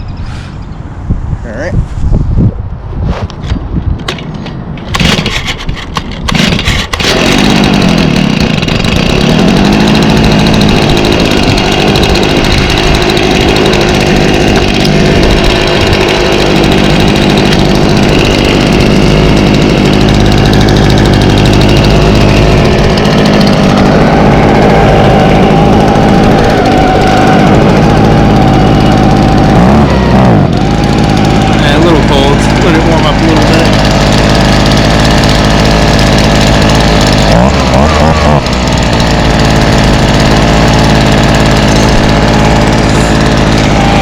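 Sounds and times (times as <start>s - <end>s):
engine pull-start pops: 4.0s - 9.6s
leaf blower engine running: 4.9s - 5.4s, 6.2s - 44.0s.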